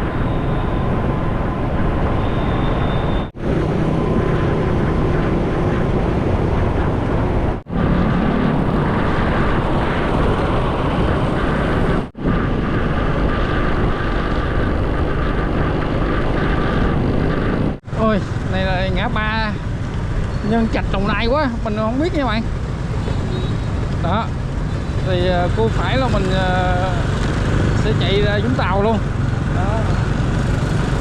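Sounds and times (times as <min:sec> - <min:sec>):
wind and road noise on microphone: 0:00.0 - 0:31.0
motorcycle engine: 0:22.5 - 0:31.0.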